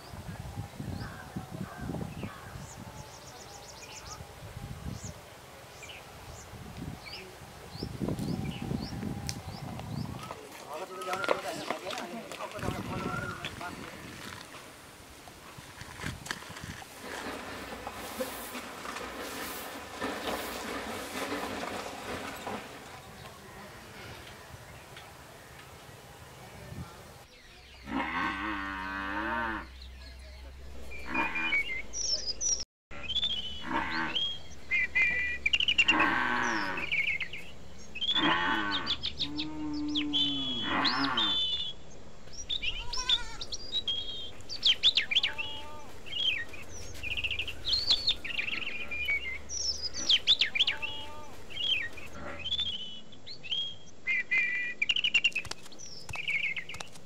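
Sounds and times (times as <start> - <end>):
farm animals calling: 8.4 - 14.4, 27.6 - 32.2, 32.9 - 41.8, 42.6 - 53.0.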